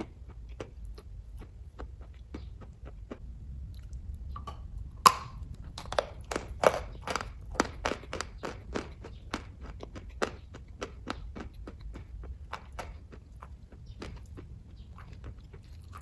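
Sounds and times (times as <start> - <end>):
close chewing with wet mouth clicks: 0.0 - 16.0.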